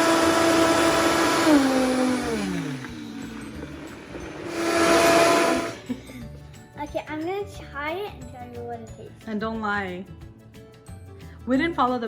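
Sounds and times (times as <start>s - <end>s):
electric blender motor whirring: 0.0s - 6.0s.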